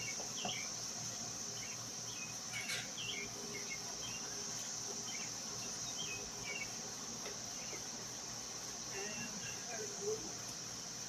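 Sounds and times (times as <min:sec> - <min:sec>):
bird chirps: 0:00.0 - 0:00.8, 0:01.5 - 0:06.8
insects droning: 0:00.0 - 0:11.0.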